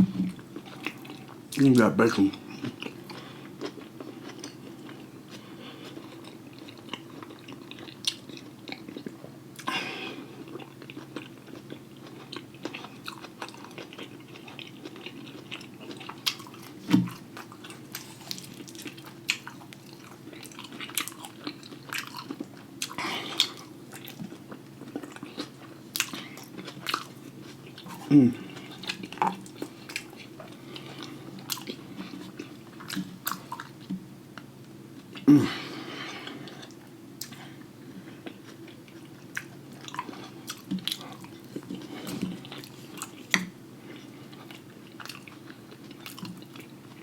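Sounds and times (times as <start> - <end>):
person chewing and biting: 2.5 - 34.0, 38.1 - 46.7.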